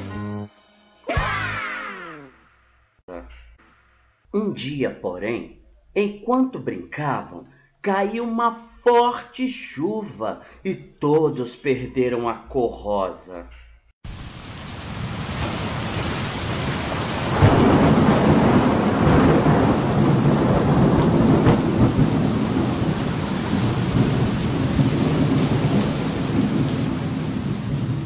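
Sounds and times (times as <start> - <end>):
heavy rain falling: 14.1 - 28.0
rumbling thunder: 14.7 - 28.0.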